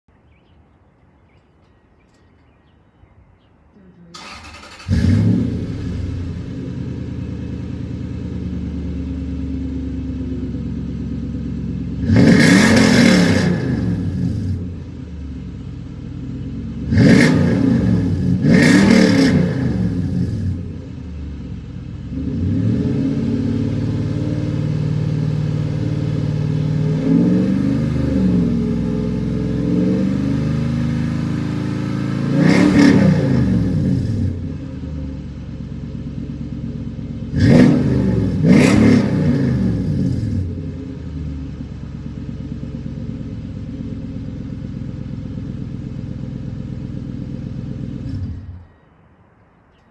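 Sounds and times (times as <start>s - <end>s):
engine starting: 4.1s - 5.8s
engine idling: 4.2s - 12.6s, 13.7s - 17.3s, 33.6s - 48.8s
engine revving: 4.2s - 15.0s, 16.8s - 21.0s, 22.1s - 35.2s, 36.2s - 41.6s, 44.6s - 48.7s.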